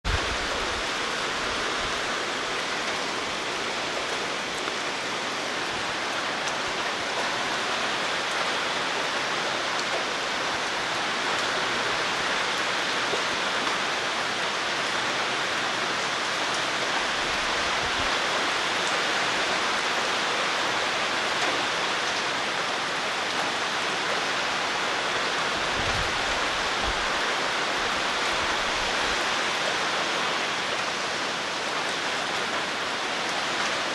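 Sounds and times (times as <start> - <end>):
roaring wind: 0.0 - 9.0, 25.4 - 29.4
heavy rain pouring: 0.0 - 33.9.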